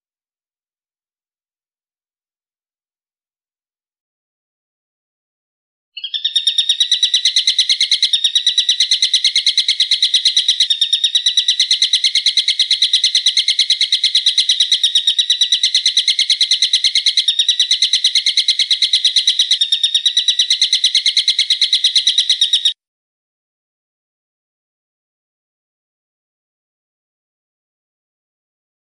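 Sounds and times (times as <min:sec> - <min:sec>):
rapid high bird call: 0:06.0 - 0:22.8.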